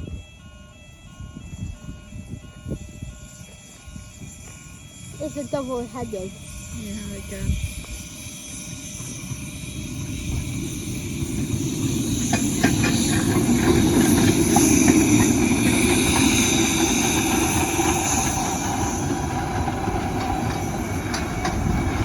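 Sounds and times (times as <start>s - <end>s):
train running past: 0.0s - 22.0s
wheels clicking over rail joints: 7.8s - 22.0s.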